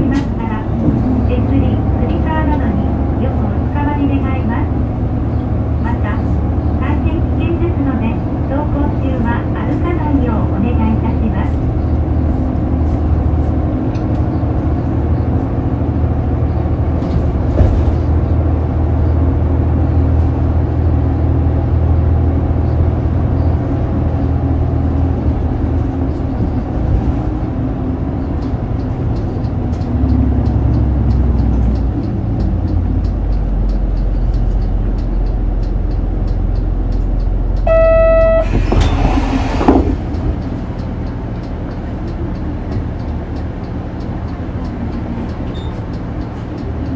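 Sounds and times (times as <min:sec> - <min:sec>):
bus diesel engine drone: 0:00.0 - 0:46.9
road noise: 0:00.0 - 0:46.9
short electronic chime: 0:37.7 - 0:39.2.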